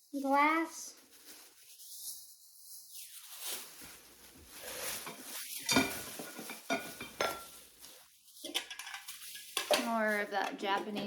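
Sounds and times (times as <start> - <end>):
rustling of items being unpacked: 0.0 - 11.0
hard objects clinking together: 4.9 - 7.6, 8.4 - 11.0.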